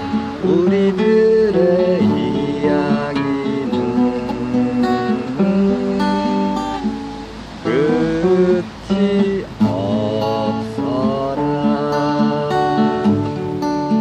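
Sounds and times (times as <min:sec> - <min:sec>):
acoustic guitar picking: 0:00.0 - 0:14.0.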